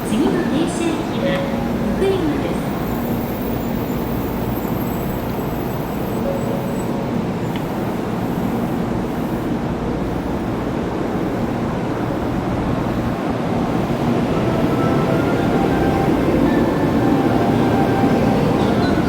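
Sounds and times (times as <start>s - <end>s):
train rumbling at platform: 0.0s - 19.0s.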